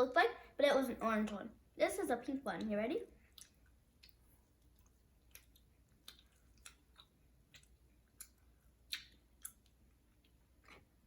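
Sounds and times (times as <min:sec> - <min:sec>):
wet mouth clicks of chewing: 0:03.2 - 0:11.0.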